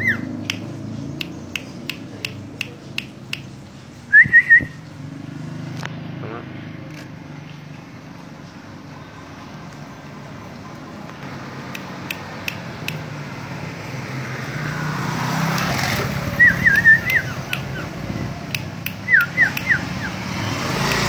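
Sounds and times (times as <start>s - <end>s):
songbird whistling: 0.0s - 0.6s, 4.1s - 4.8s, 16.2s - 18.0s, 18.8s - 20.2s
passing vehicles rumble: 0.0s - 21.0s
sharp clicks: 0.4s - 3.6s, 11.2s - 13.1s, 15.5s - 16.0s, 16.6s - 19.9s, 20.8s - 21.0s.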